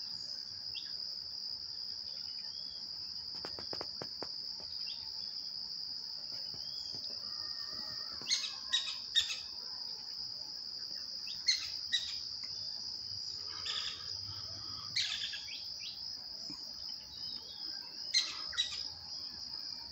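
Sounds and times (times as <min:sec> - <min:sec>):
high-pitched insect trill: 0:00.0 - 0:19.9
bird calls: 0:06.5 - 0:09.6, 0:11.3 - 0:19.0.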